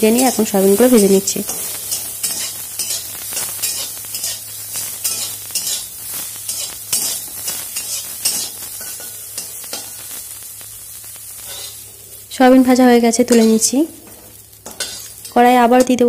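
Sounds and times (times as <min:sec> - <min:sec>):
food sizzling in oil: 0:00.0 - 0:16.0
metal spatula scraping pan: 0:01.0 - 0:05.9, 0:06.5 - 0:10.0, 0:11.4 - 0:11.8, 0:13.3 - 0:16.0.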